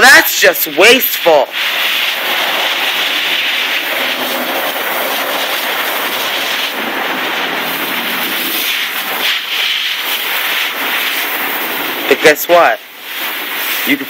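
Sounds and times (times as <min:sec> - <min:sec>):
garden hose spraying water: 0:00.0 - 0:14.0.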